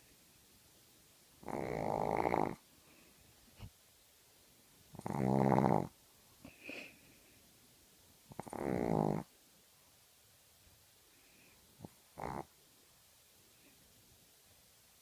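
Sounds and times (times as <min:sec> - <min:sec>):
dog snoring: 0:01.4 - 0:02.6, 0:04.9 - 0:06.0, 0:08.3 - 0:09.3, 0:11.8 - 0:12.6.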